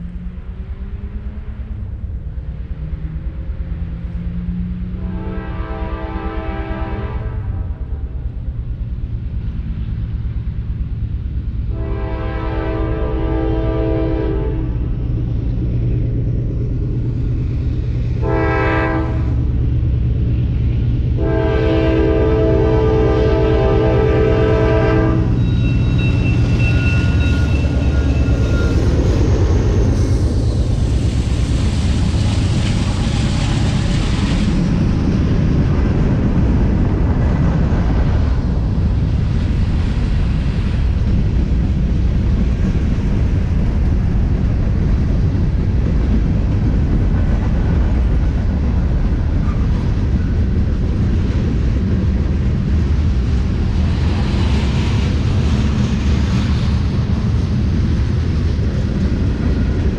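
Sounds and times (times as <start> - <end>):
train rumbling past: 0.0 - 59.9
train horn: 4.8 - 7.8, 11.7 - 14.8, 18.2 - 19.4, 21.1 - 28.8.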